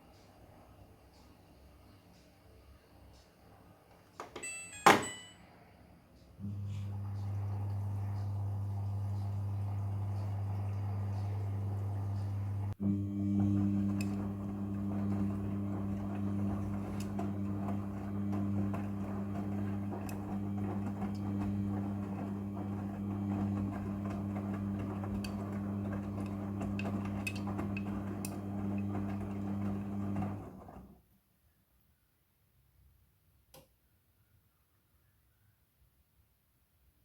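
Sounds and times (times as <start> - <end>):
washing machine motor hum: 6.4 - 31.0.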